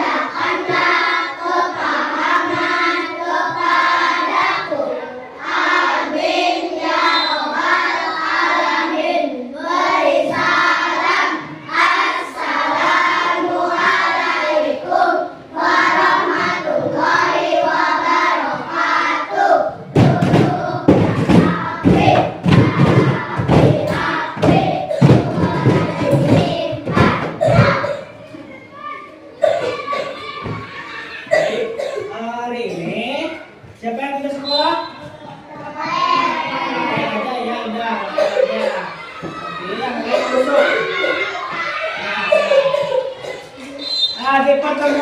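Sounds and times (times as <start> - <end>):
children chanting in unison: 0.0 - 32.1, 35.6 - 43.8
thumps and claps: 19.9 - 28.0.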